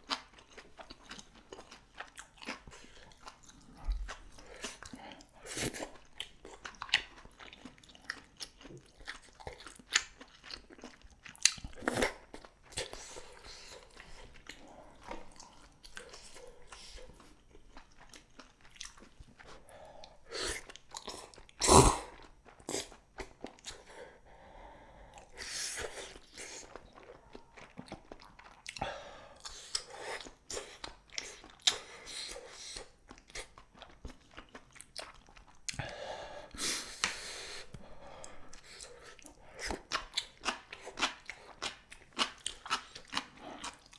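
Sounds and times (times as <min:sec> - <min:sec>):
chewing and biting: 0:00.0 - 0:24.0, 0:25.1 - 0:43.9
wet mouth clicks: 0:11.4 - 0:13.0, 0:18.7 - 0:22.9.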